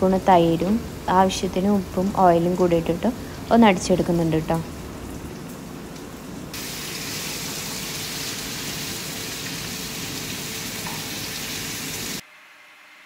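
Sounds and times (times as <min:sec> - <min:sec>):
chicken sizzling in a pan: 0:06.5 - 0:12.2.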